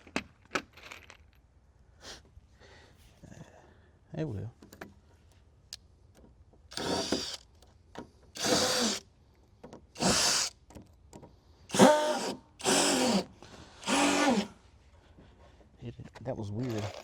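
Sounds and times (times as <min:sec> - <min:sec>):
power drill whining: 0:06.7 - 0:07.5, 0:08.4 - 0:09.0, 0:10.0 - 0:10.6, 0:11.7 - 0:14.6, 0:16.6 - 0:17.0.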